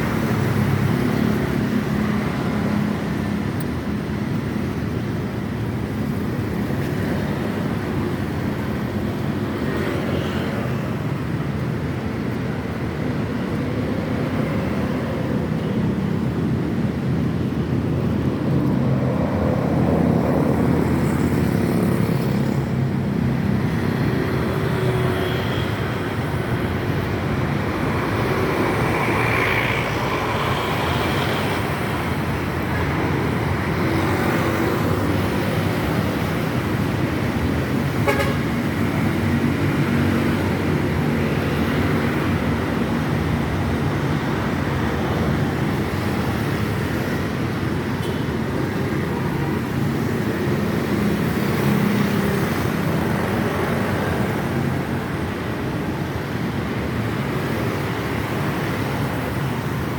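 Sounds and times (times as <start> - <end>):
road traffic: 0.0 - 59.9
car horn tooting: 38.0 - 38.4.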